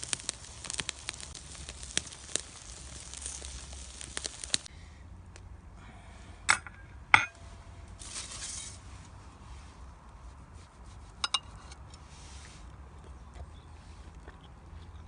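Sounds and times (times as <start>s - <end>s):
cookware clinking: 6.5s - 7.4s.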